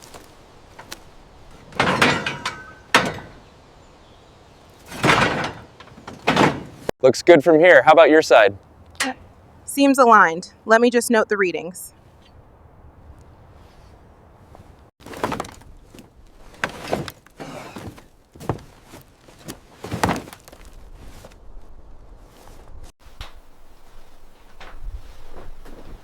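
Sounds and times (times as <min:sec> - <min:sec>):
tools clunking and knocking: 0:00.7 - 0:03.7, 0:04.6 - 0:06.9, 0:15.0 - 0:21.3
faint rustling: 0:13.1 - 0:22.9.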